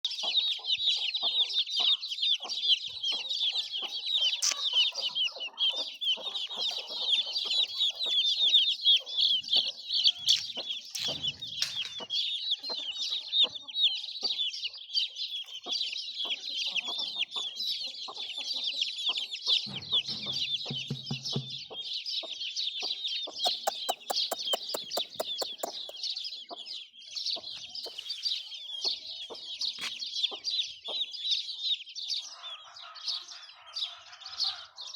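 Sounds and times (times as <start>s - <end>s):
chickens clucking: 0.0s - 31.2s
chicks cheeping: 0.0s - 34.9s
quick run of clicks: 23.5s - 26.0s.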